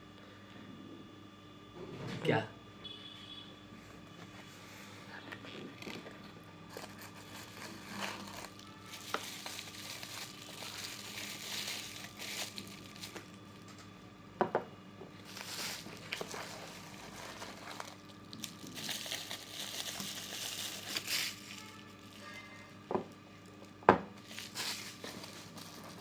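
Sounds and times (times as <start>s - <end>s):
packaging crinkling: 5.5s - 13.9s, 15.2s - 22.8s, 23.4s - 26.0s.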